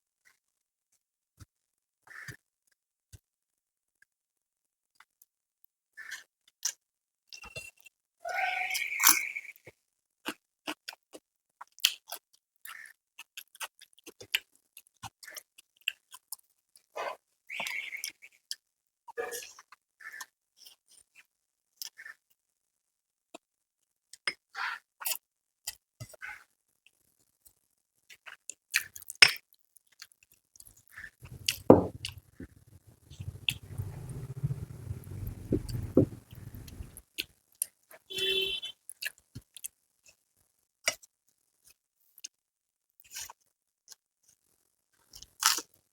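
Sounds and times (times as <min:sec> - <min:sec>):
wet mouth clicks and chewing: 0:30.0 - 0:37.4
low steady hum: 0:31.2 - 0:37.0.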